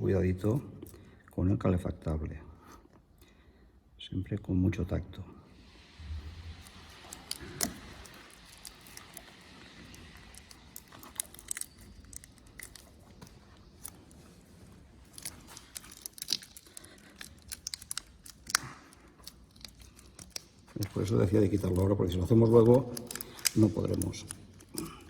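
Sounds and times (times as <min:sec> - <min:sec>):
blade scraping and tearing rubber grip: 0:06.5 - 0:25.0.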